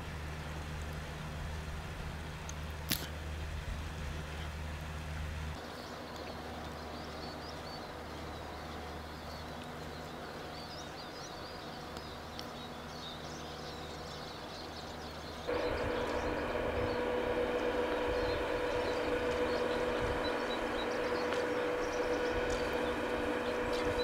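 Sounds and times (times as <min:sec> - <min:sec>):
low outdoor hum: 0:00.0 - 0:24.0
small birds chirping: 0:05.6 - 0:24.0.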